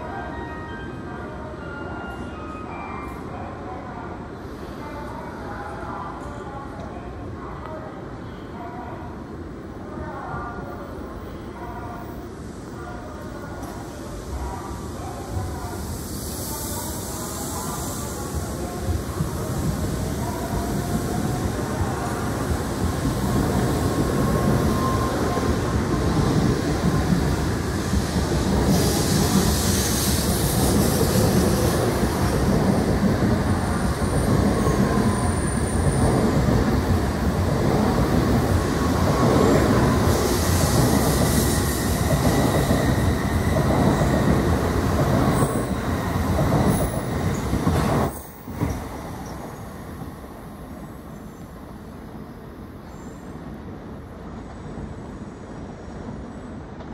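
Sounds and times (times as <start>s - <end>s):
train rumbling past: 13.4s - 52.8s.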